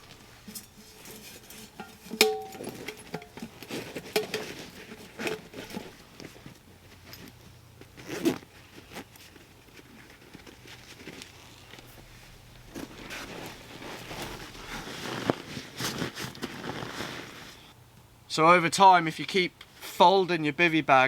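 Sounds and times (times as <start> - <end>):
camping gear rustling and knocking: 0.0 - 17.6
sharp ringing clink: 0.5 - 3.6.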